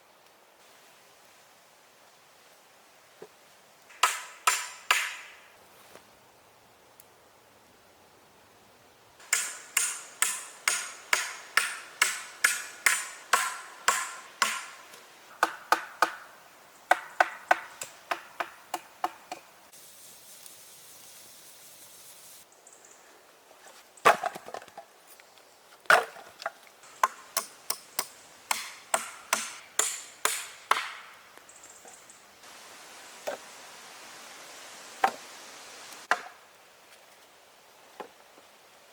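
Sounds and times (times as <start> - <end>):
hand tool striking wood: 3.9 - 5.4, 9.2 - 16.2, 16.9 - 19.5, 27.0 - 31.1.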